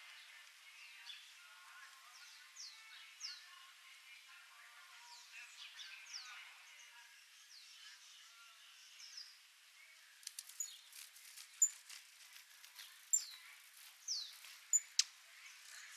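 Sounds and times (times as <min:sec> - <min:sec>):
faint high bird chirps: 0:05.0 - 0:11.9, 0:12.7 - 0:15.9.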